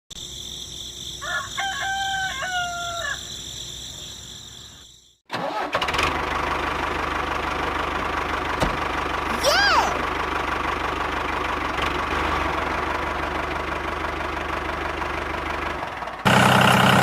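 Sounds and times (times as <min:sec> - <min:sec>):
rooster crowing: 0:01.1 - 0:03.4
small engine running: 0:05.3 - 0:17.0.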